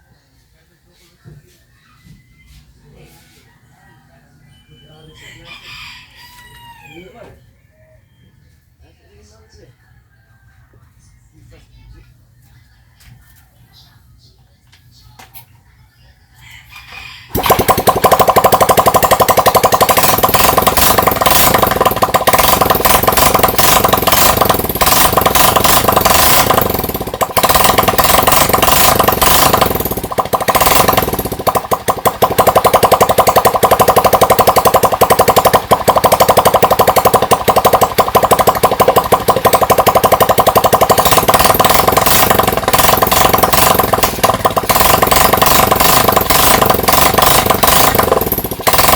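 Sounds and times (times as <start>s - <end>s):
motorcycle engine running: 17.3s - 48.9s.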